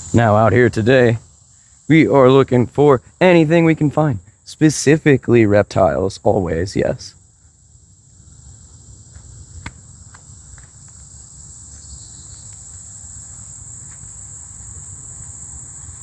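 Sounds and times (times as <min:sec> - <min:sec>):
insect chorus: 0:00.0 - 0:16.0
footsteps: 0:09.1 - 0:14.7.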